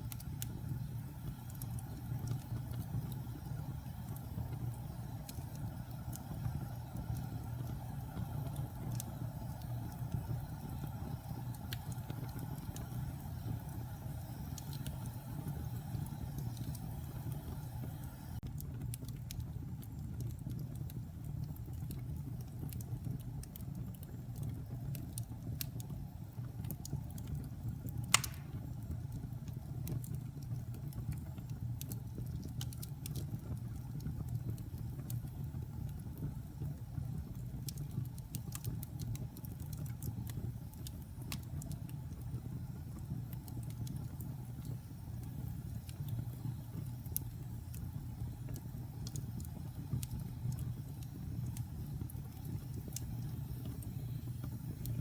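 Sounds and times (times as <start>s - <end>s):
fire crackling: 0.0s - 55.0s
fire flames rumbling: 0.0s - 55.0s
loud sharp fire pop: 28.1s - 28.6s.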